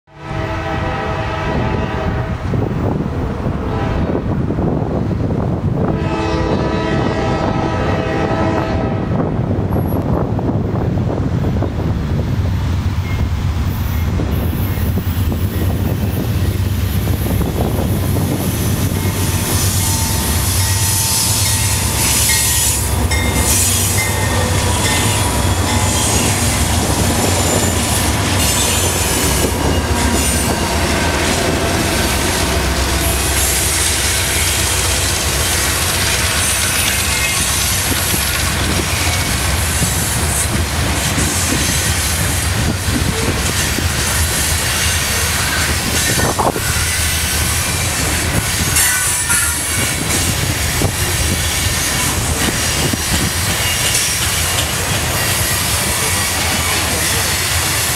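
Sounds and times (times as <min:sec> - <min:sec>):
train horn: 0:00.1 - 0:02.4, 0:03.6 - 0:04.3, 0:05.8 - 0:09.3, 0:19.0 - 0:37.8, 0:48.6 - 0:50.1
steel wheels clattering and squealing: 0:18.4 - 0:30.6, 0:35.4 - 0:57.9.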